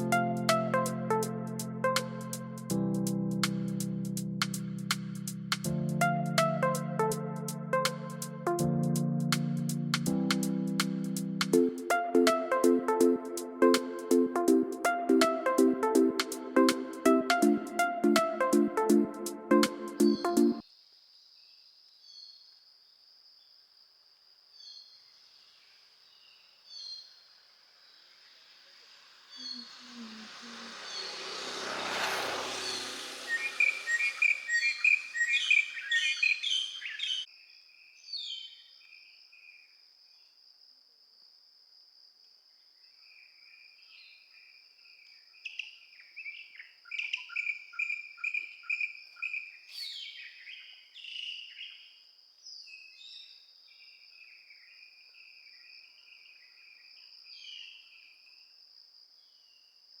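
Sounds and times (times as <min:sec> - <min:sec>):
high insect drone: 0:27.3 - 0:36.3
brief rush of noise: 0:28.7 - 0:35.9
birds chirping and calling: 0:32.6 - 0:37.2.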